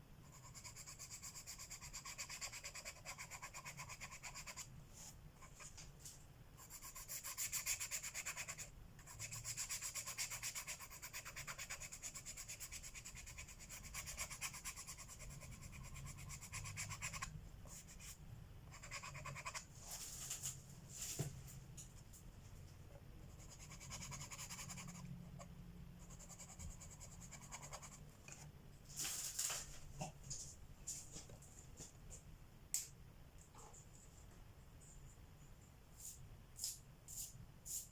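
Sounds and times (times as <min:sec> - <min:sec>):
pencil scratching on paper: 0:00.2 - 0:05.8, 0:06.6 - 0:20.2, 0:23.3 - 0:28.4.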